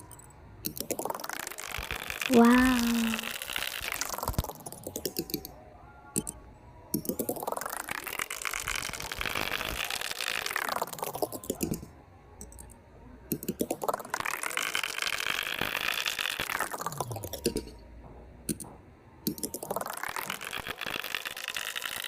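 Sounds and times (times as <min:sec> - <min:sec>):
fast clicking clatter: 0:03.2 - 0:05.5, 0:07.0 - 0:12.7, 0:13.3 - 0:17.8, 0:19.3 - 0:22.0.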